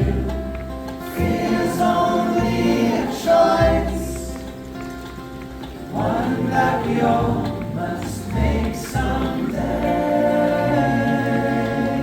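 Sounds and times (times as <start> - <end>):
voices singing in harmony: 0.0 - 4.6, 5.9 - 12.0
band playing live: 0.0 - 12.0
low bass notes: 0.0 - 12.0.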